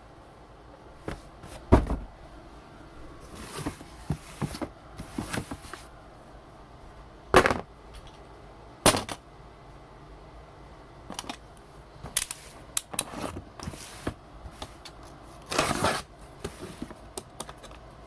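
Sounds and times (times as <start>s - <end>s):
packaging knocks and thuds: 1.0s - 2.1s
packaging rustling and scraping: 3.2s - 6.0s, 12.3s - 17.0s.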